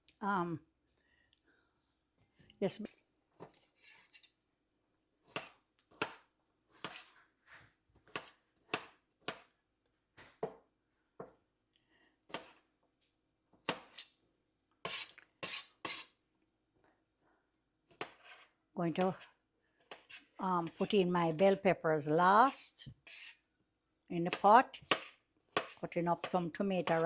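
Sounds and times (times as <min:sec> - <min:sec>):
knife chopping on cutting board: 0:05.3 - 0:07.1, 0:08.1 - 0:09.5, 0:24.3 - 0:27.0.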